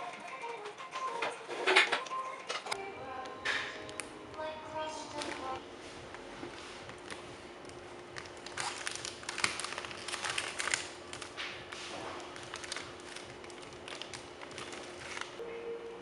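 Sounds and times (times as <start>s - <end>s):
faint steady hum: 2.0s - 16.0s
packaging crinkling: 5.1s - 15.4s.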